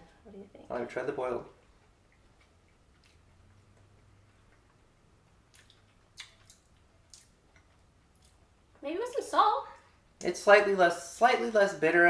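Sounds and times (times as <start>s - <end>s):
faint room hum: 0.0s - 12.0s
soft chewing clicks and smacks: 1.5s - 8.8s.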